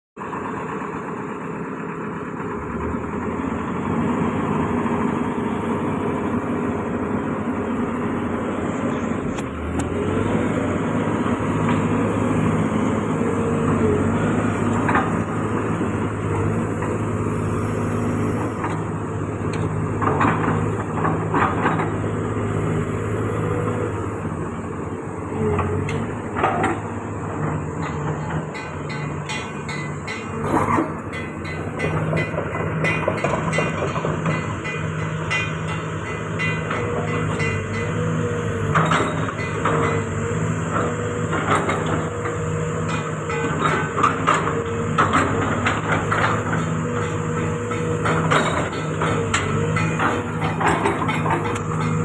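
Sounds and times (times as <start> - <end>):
diesel engine running: 0.2 - 52.0
metallic clanks and rattles: 11.2 - 22.3, 25.5 - 52.0.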